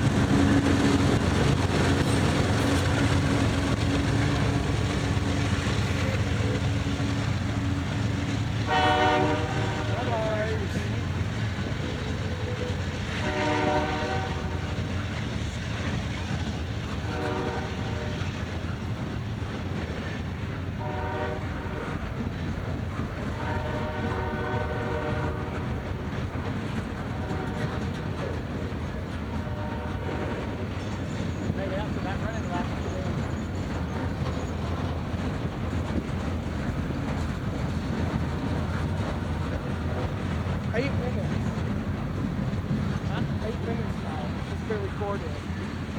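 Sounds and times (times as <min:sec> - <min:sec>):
train rumbling on rails: 0:00.0 - 0:45.9
locomotive air horn blasts: 0:08.7 - 0:10.1, 0:13.2 - 0:14.8, 0:17.1 - 0:18.2, 0:20.8 - 0:22.0, 0:23.4 - 0:25.7, 0:27.1 - 0:27.9, 0:29.4 - 0:30.5.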